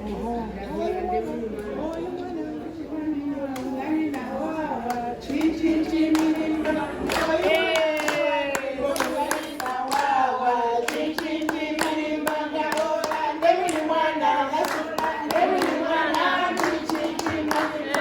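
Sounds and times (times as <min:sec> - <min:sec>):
women singing together: 0:00.0 - 0:18.0
hand clapping in time: 0:04.9 - 0:10.2, 0:10.8 - 0:14.0, 0:14.6 - 0:18.0.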